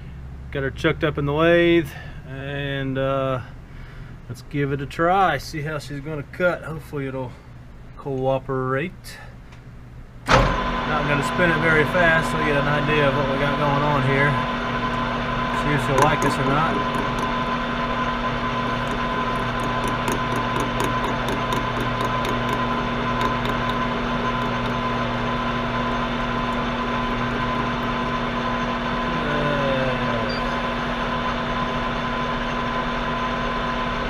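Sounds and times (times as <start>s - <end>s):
lathe motor hum: 10.3s - 34.0s
light regular ticking: 15.7s - 17.6s, 18.2s - 28.4s.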